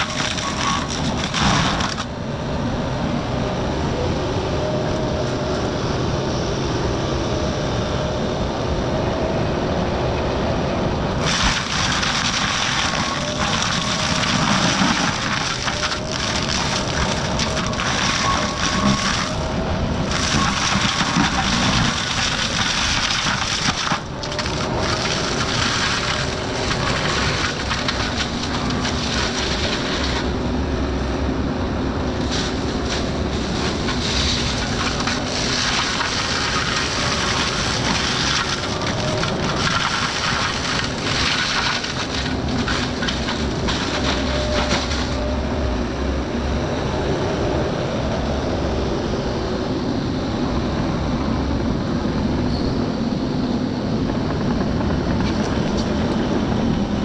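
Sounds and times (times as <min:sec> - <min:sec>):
mulcher shredding brush and wood: 0:00.0 - 0:02.3, 0:11.2 - 0:31.0, 0:31.8 - 0:45.3
excavator diesel engine under load: 0:00.0 - 0:57.0.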